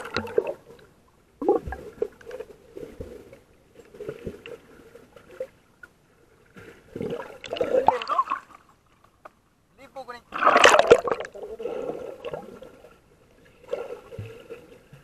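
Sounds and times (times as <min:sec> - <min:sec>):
muffled water sloshing underwater: 0:00.0 - 0:15.0
water splashing: 0:06.6 - 0:08.8, 0:10.1 - 0:15.0.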